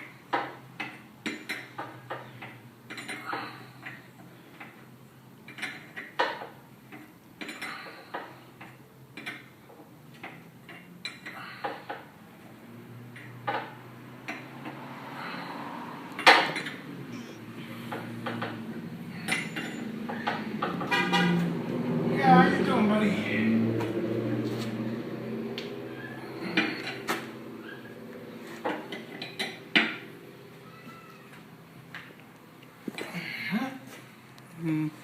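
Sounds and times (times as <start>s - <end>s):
metal tools clinking: 19.2s - 20.3s.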